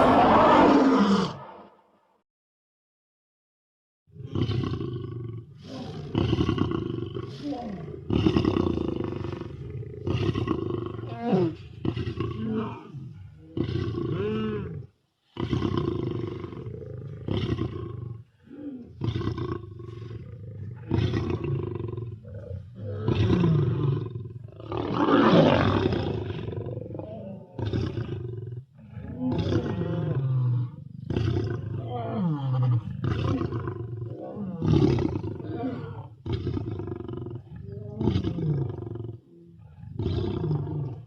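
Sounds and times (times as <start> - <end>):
lion roaring: 0.0 - 1.7, 4.2 - 41.0.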